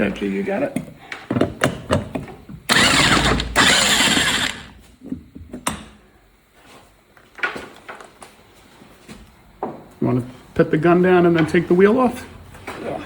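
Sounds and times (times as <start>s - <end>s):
impact wrench rattling: 2.7s - 4.8s.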